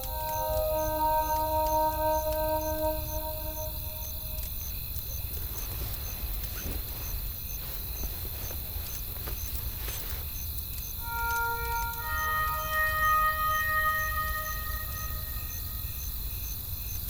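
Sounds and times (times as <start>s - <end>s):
held music note: 0.0s - 4.7s, 11.0s - 16.0s.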